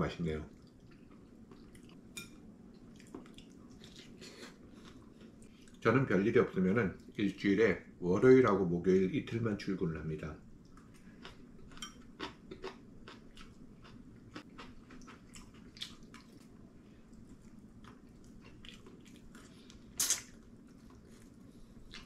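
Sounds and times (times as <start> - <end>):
person chewing and biting: 10.8 - 16.5.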